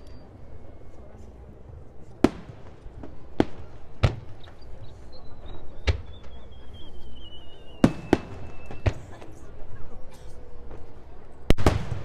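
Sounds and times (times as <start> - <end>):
fireworks exploding: 2.2 - 9.4, 11.5 - 12.0
high whistle falling in pitch: 5.3 - 8.9.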